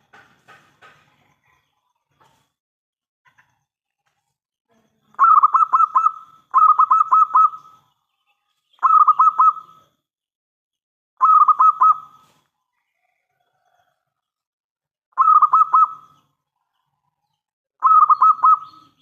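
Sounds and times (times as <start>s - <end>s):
dove cooing: 5.2s - 7.7s, 8.8s - 9.8s, 11.2s - 12.3s, 15.2s - 16.1s, 17.8s - 19.0s.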